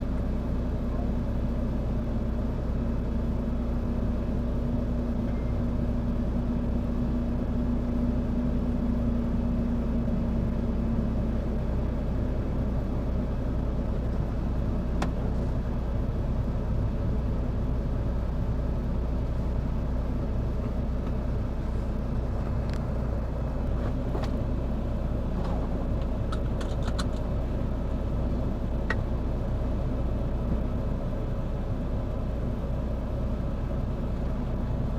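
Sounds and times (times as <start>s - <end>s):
motor vehicle rumble: 0.0s - 34.9s.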